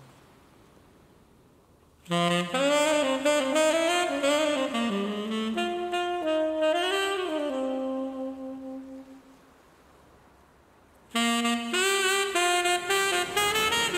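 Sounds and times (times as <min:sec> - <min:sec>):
jazz saxophone melody: 0:02.0 - 0:09.4, 0:11.1 - 0:13.9.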